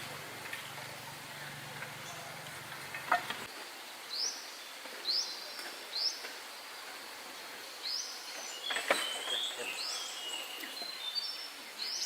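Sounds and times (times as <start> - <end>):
outdoor hiss: 0.0 - 12.0
bird chirping: 0.6 - 3.5, 7.8 - 12.0.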